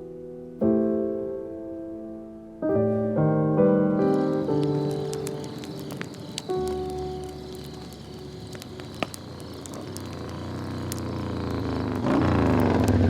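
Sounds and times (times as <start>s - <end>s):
motorcycle engine approaching: 4.5s - 13.0s.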